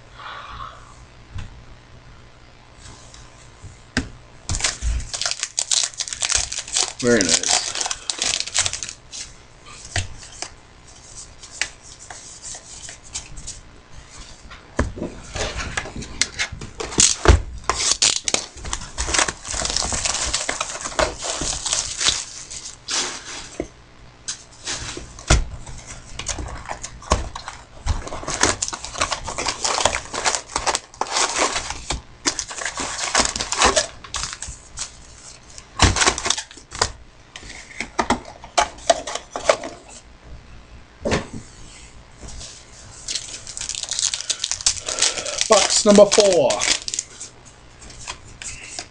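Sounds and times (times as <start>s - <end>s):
wrapper crinkling: 4.6s - 9.3s, 16.8s - 23.3s, 26.2s - 36.7s, 43.0s - 48.8s.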